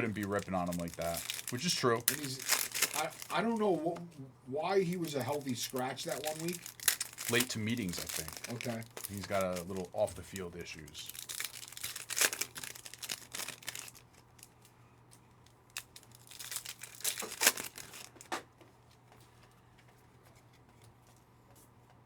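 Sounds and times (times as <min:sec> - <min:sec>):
plastic wrapper tearing and crinkling: 0:00.0 - 0:03.8, 0:04.8 - 0:14.6, 0:15.7 - 0:18.3.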